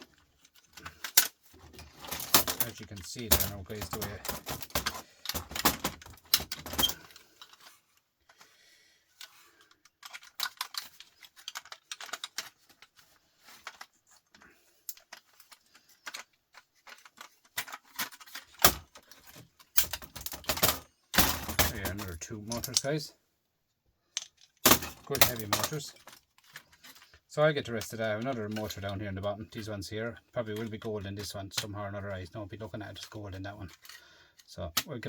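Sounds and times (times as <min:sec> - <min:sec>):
small metal parts clinking: 0:00.1 - 0:07.8, 0:09.2 - 0:13.9, 0:14.8 - 0:22.9, 0:24.1 - 0:27.2.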